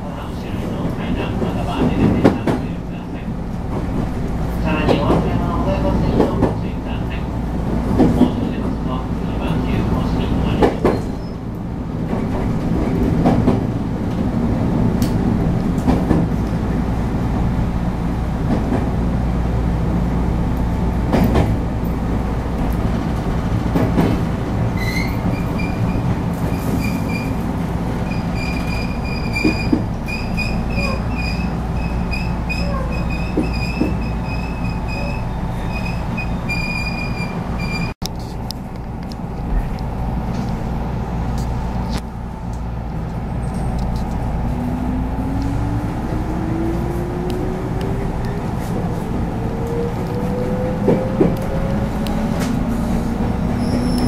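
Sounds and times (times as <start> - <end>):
high-pitched wheel squeal: 24.8 - 26.0, 28.0 - 37.9, 53.6 - 54.0.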